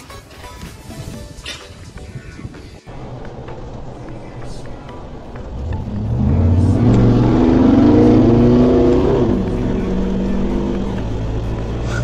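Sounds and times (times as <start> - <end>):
engine accelerating: 2.9 - 12.0.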